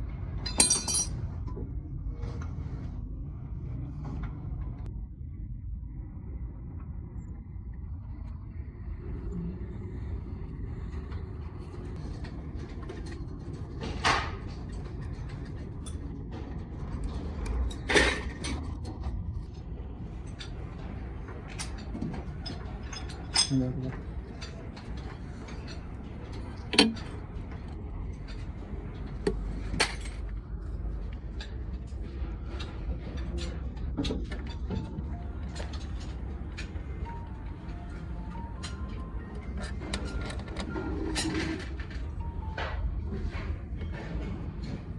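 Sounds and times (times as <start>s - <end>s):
low hum: 0.0s - 44.9s
low mechanical rumble: 0.0s - 44.9s
metal tools clinking: 0.5s - 1.2s, 29.3s - 30.4s.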